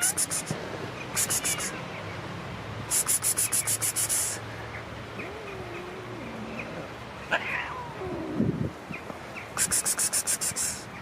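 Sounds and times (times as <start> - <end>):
cat growling: 5.2 - 8.6.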